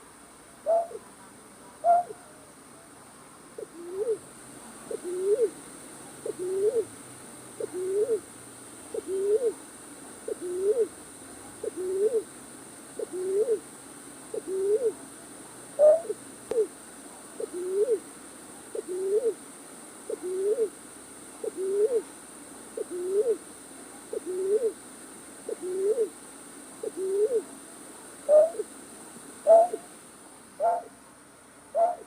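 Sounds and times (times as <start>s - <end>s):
night bird hooting call: 0.6s - 1.0s, 1.8s - 2.3s, 3.6s - 4.2s, 4.9s - 5.6s, 6.2s - 6.9s, 7.6s - 8.3s, 8.9s - 9.6s, 10.3s - 10.9s, 11.6s - 12.3s, 13.0s - 13.6s, 14.3s - 15.0s, 15.8s - 16.7s, 17.4s - 18.0s, 18.7s - 19.4s, 20.1s - 20.7s, 21.4s - 22.1s, 22.8s - 23.4s, 24.1s - 24.8s, 25.5s - 26.1s, 26.8s - 27.5s, 28.2s - 28.7s, 29.4s - 29.9s, 30.6s - 30.9s, 31.7s - 32.0s.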